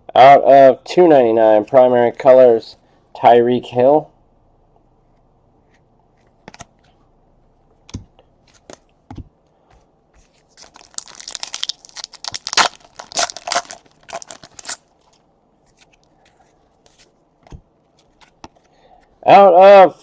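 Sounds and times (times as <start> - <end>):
foil wrapper tearing and crinkling: 10.6 - 15.0.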